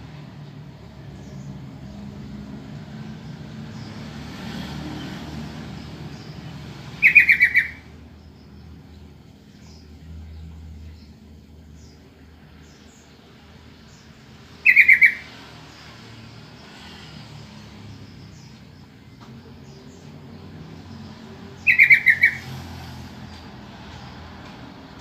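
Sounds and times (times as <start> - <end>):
bulbul calls: 7.0 - 7.9, 14.6 - 15.3, 21.6 - 22.5.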